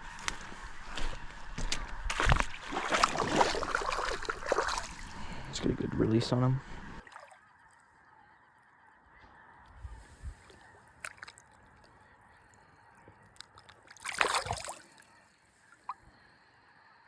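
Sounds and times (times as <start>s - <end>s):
fish splashing in water: 2.1s - 5.4s, 13.5s - 15.1s.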